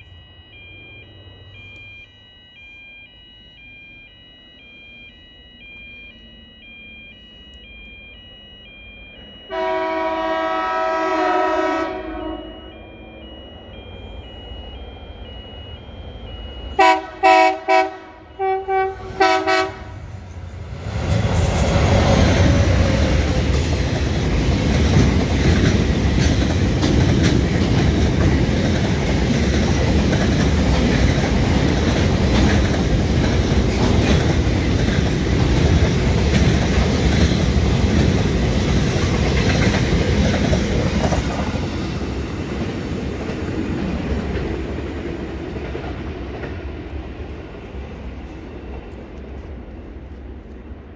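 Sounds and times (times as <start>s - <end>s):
train horn short blasts: 9.5s - 12.5s, 16.8s - 20.0s
train passing with wheel clatter: 9.5s - 50.9s.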